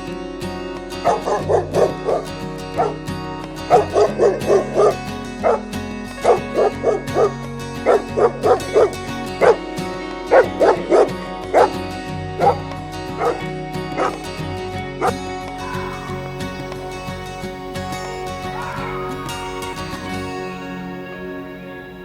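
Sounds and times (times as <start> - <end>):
background music with low notes: 0.0 - 22.0
dog barking: 1.0 - 3.0, 3.6 - 9.6, 10.3 - 11.8, 12.4 - 14.3.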